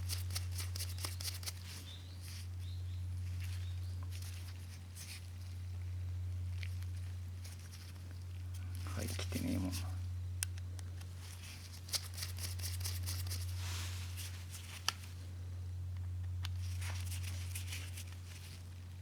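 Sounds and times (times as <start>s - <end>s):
steady low hum: 0.0s - 19.0s
light rustling: 10.8s - 15.3s.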